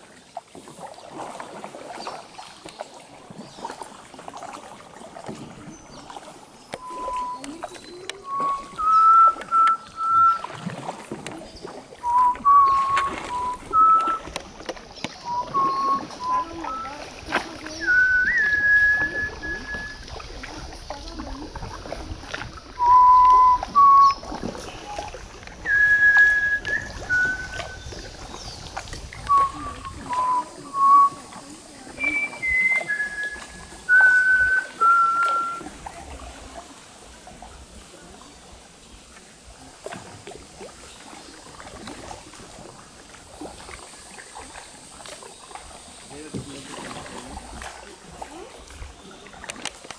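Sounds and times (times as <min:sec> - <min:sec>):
person whistling a slow tune: 0:06.8 - 0:10.5, 0:12.0 - 0:14.3, 0:15.2 - 0:17.0, 0:17.8 - 0:20.1, 0:22.8 - 0:24.3, 0:25.6 - 0:27.9, 0:29.2 - 0:31.3, 0:32.0 - 0:35.7
bird whistling descending notes: 0:08.2 - 0:10.5, 0:12.0 - 0:14.3, 0:15.2 - 0:17.0.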